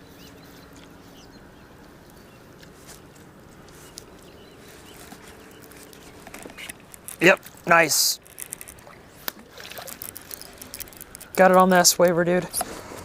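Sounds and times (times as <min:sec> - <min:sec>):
low steady hum: 0:00.0 - 0:13.0
small clicks: 0:08.2 - 0:11.7.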